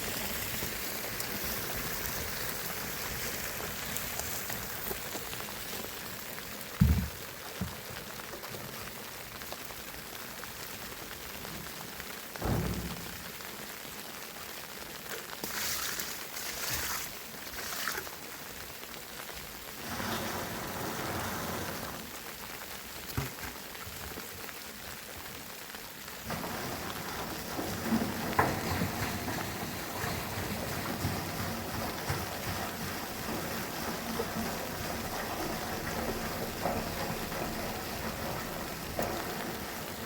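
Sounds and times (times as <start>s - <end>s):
water splashing and running: 0.0s - 40.0s
thump: 6.8s - 7.7s, 12.4s - 13.2s.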